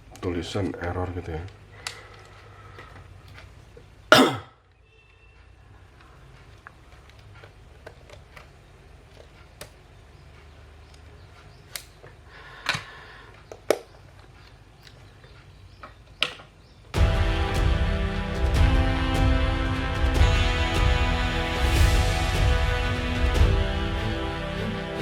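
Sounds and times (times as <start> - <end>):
faint room noise: 0.0 - 17.0
short loud burst: 17.0 - 25.0.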